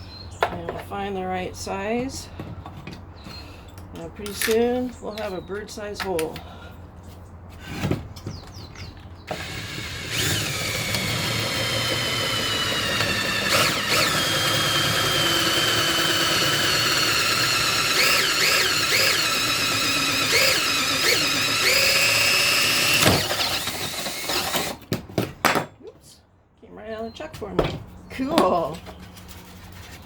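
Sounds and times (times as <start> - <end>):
power drill with hole saw cutting: 9.3 - 24.8.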